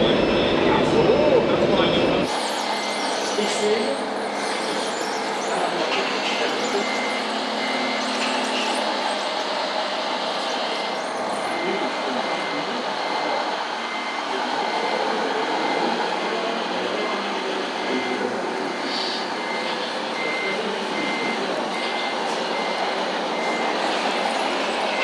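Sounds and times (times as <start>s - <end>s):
mixed background noise: 0.0s - 25.0s
truck reversing alarm beeping: 0.0s - 25.0s.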